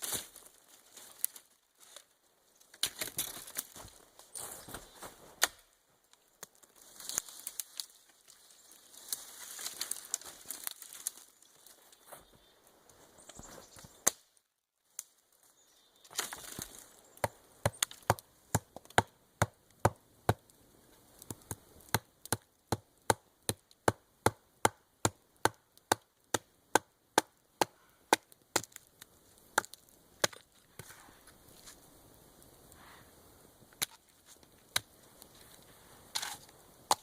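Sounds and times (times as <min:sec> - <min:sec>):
wood being chopped: 0:16.1 - 0:20.5, 0:21.3 - 0:28.9, 0:29.5 - 0:30.9, 0:36.2 - 0:37.0.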